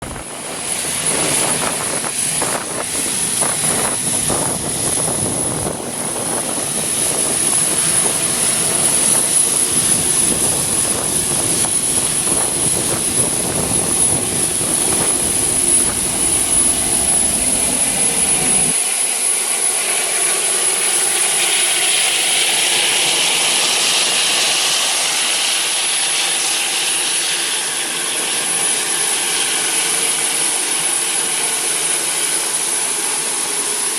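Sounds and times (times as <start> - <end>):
rush of air noise: 0.0 - 18.8
jet engine whine: 0.0 - 33.9
heavy rumble: 1.1 - 18.7.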